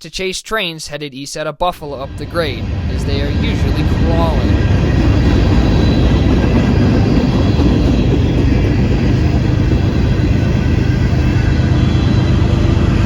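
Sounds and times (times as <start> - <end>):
diesel locomotive engine drone: 1.9 - 13.0
train wheels rolling on rails: 2.0 - 13.0.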